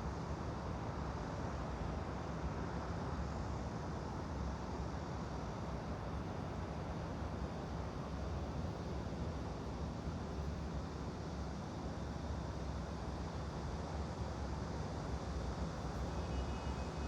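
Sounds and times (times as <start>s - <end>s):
white noise with low rumble: 0.0s - 17.0s.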